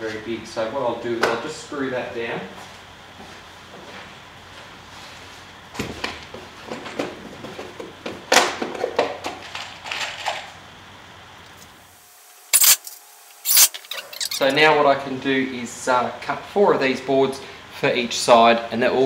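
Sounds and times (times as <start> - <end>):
cordless drill driving screw: 12.5 - 14.6
screws and tool rattling on wood: 12.6 - 14.6.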